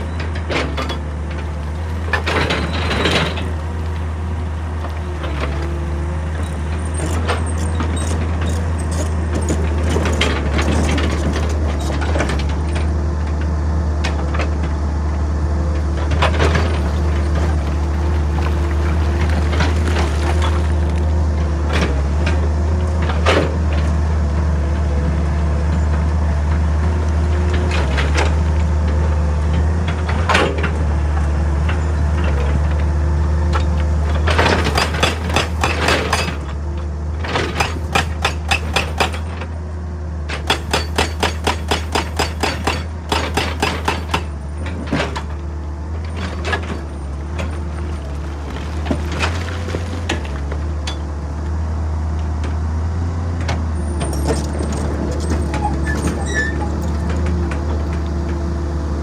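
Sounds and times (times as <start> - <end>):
diesel engine running: 0.0 - 59.0
hydraulic rock breaker hammering: 15.6 - 39.6, 40.2 - 51.6.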